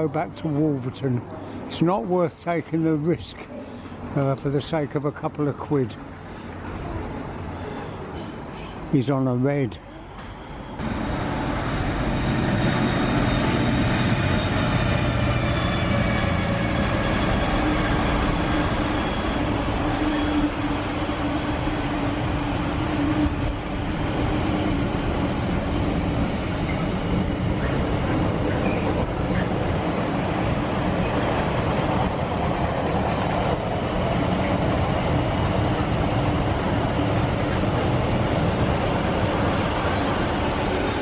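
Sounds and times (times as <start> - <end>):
train wheels rumbling on rail: 6.1 - 8.9, 10.1 - 41.0.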